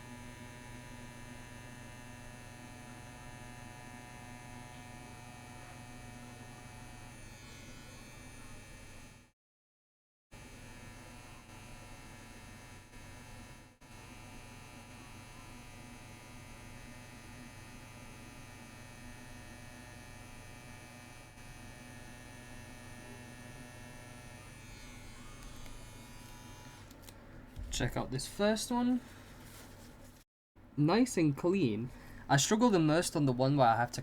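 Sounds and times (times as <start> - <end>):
tattoo machine buzzing: 0.0 - 9.3, 10.4 - 27.1.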